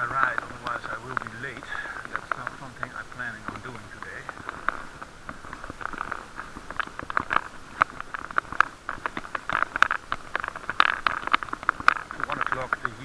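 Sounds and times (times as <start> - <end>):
bicycle clicks and rattles: 0.0 - 13.0
steady hiss: 0.0 - 13.0.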